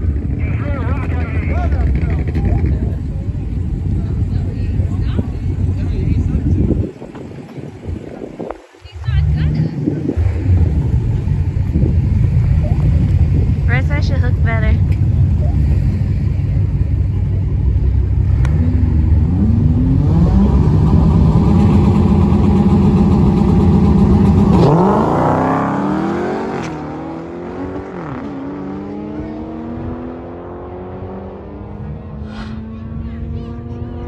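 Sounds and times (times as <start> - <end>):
car engine revving and accelerating: 18.1 - 34.0.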